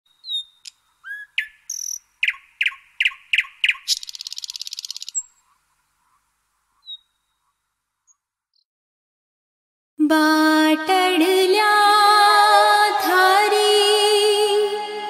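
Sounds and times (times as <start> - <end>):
bird trill: 0.1 - 5.6, 6.8 - 8.6
bird chirps: 0.1 - 8.7.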